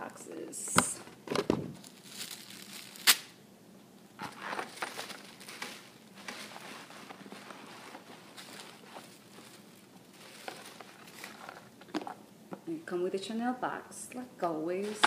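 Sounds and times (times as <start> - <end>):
paper packaging rustling: 1.3 - 3.3, 4.2 - 12.2.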